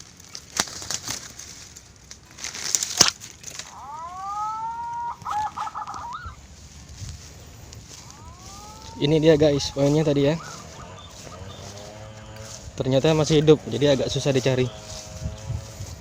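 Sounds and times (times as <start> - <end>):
sharp cracks: 0.0 - 6.4
rustling: 0.0 - 16.0
rooster crowing: 3.6 - 6.7, 7.8 - 12.6.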